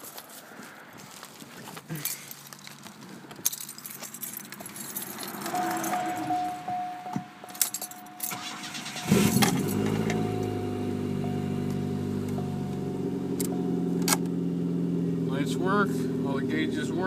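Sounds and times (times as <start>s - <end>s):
car engine cranking and idling: 2.0s - 17.0s
ignition key clicks: 11.6s - 14.4s.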